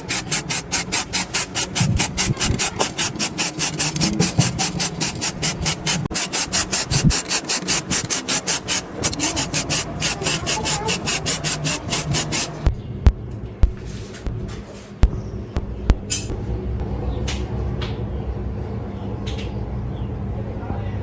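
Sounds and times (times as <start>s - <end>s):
abrasive rasping strokes: 0.0s - 12.7s.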